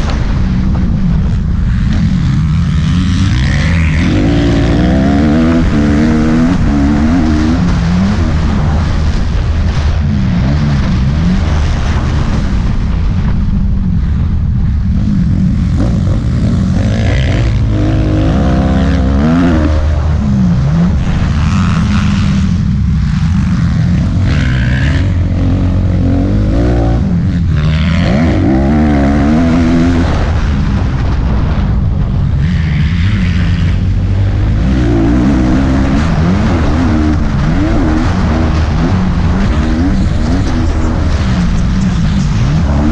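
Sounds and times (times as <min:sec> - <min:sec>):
motocross bike engine revving: 0:00.0 - 0:13.4, 0:14.0 - 0:42.9
steady low rumble: 0:00.0 - 0:42.9.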